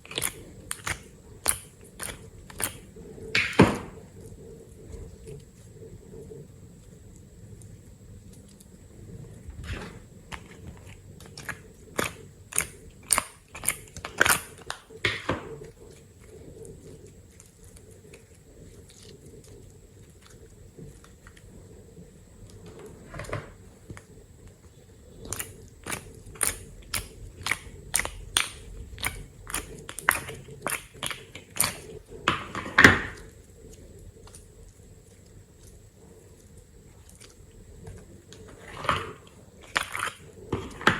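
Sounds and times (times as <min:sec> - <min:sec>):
slime sticky clicks and crackles: 0:00.0 - 0:03.6, 0:10.3 - 0:16.0, 0:25.2 - 0:35.8, 0:36.4 - 0:40.9.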